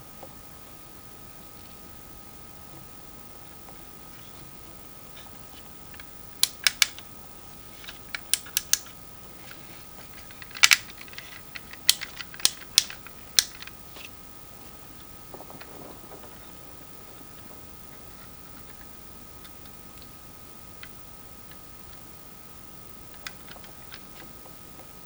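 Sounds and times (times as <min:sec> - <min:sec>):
plastic toy figure clicks: 0:06.4 - 0:07.0, 0:07.8 - 0:09.0, 0:10.2 - 0:13.7.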